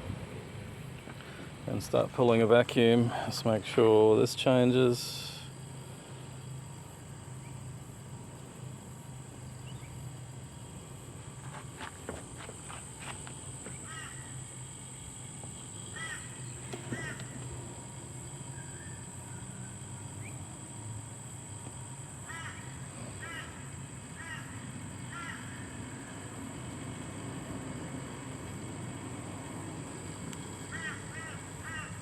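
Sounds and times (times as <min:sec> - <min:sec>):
steady high whine: 0:00.0 - 0:32.0
vacuum pump humming: 0:00.0 - 0:32.0
bird short repeated calls: 0:15.9 - 0:17.4.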